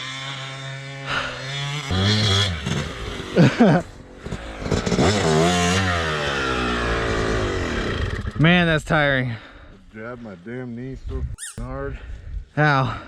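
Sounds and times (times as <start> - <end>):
dirt bike engine revving: 0.0 - 8.6.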